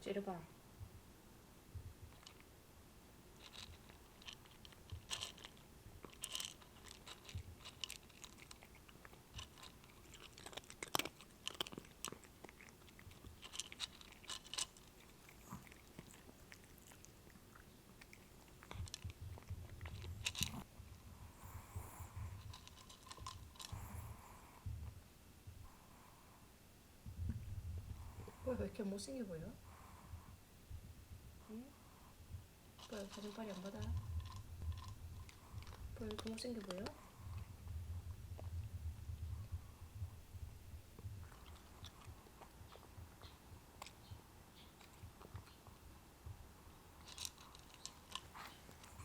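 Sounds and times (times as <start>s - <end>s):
person chewing and crunching food: 3.4s - 20.7s, 32.8s - 39.7s, 40.7s - 45.9s, 46.7s - 49.0s
low hum: 36.9s - 44.4s.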